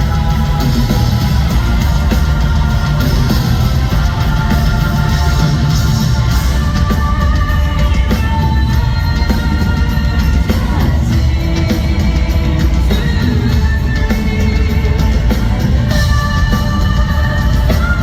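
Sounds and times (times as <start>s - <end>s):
metal band playing live: 0.0s - 18.0s.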